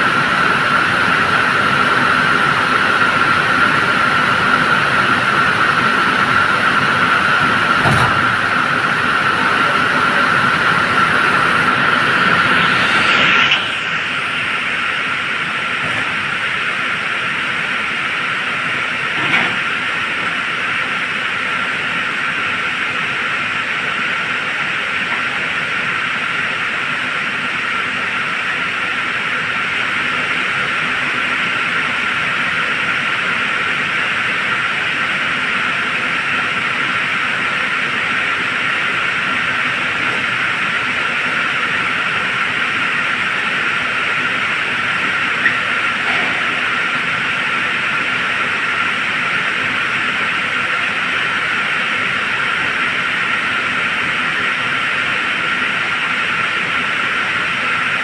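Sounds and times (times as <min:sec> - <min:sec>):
vehicle running noise with whine: 0:00.0 - 0:58.0.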